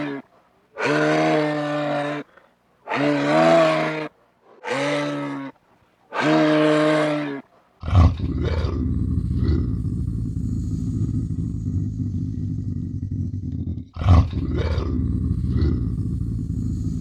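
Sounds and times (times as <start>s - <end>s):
lion roaring: 6.2s - 17.0s.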